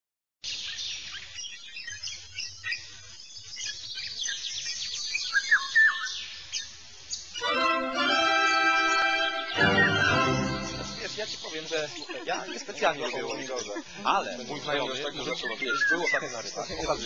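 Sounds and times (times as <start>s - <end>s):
birds chirping and singing: 0.5s - 17.0s
whistled bird notes: 0.6s - 6.7s, 8.4s - 12.1s, 15.2s - 16.8s.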